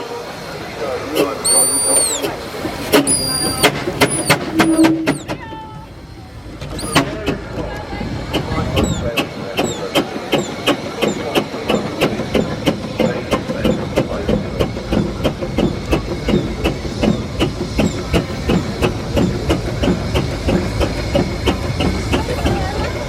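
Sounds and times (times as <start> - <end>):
steam engine exhaust beats: 1.0 - 23.0
low rumble: 4.3 - 9.4.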